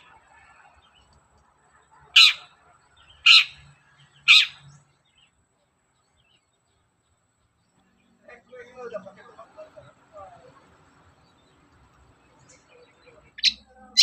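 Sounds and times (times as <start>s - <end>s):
shrike giving harsh calls: 2.2s - 2.5s, 3.2s - 3.6s, 4.2s - 4.6s.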